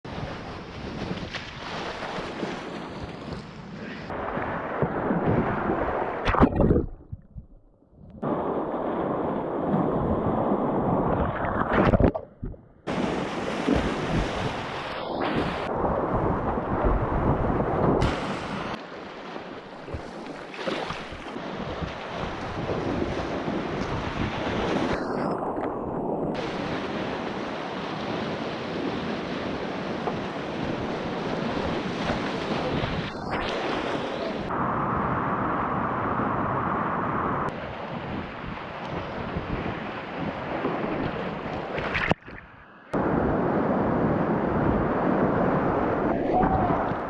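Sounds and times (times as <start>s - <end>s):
wind buffeting microphone: 0.1s - 18.8s, 21.0s - 26.8s, 37.4s - 47.0s.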